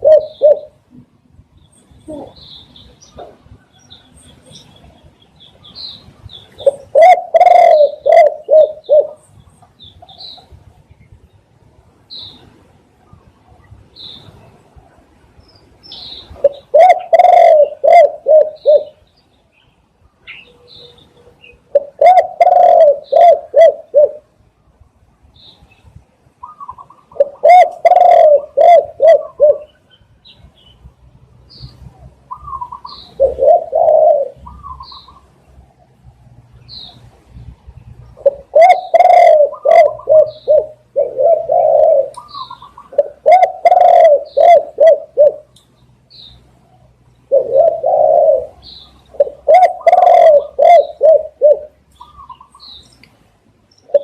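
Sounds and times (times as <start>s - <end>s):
doves cooing: 0.0s - 0.9s, 6.5s - 9.3s, 16.4s - 19.0s, 21.7s - 24.3s, 26.4s - 29.8s, 31.8s - 35.3s, 38.1s - 45.5s, 46.9s - 52.7s.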